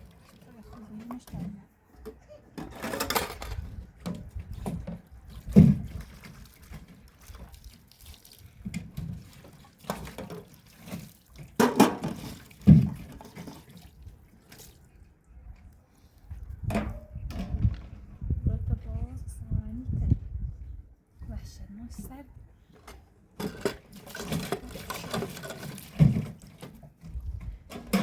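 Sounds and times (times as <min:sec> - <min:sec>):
water splashing and dripping: 0:00.0 - 0:01.4, 0:03.6 - 0:16.8, 0:23.4 - 0:28.0.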